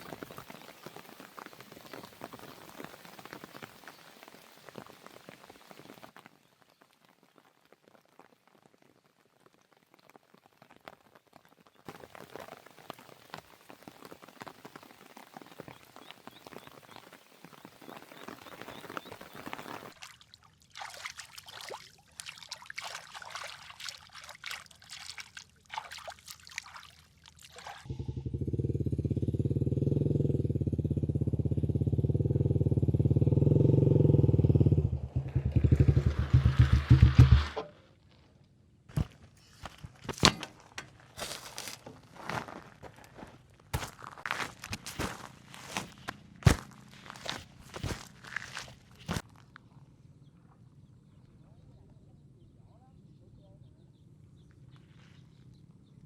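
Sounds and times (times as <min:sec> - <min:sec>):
soft crackling and rustling: 0:00.0 - 0:20.0, 0:37.9 - 0:49.7
small engine running: 0:27.9 - 0:37.6.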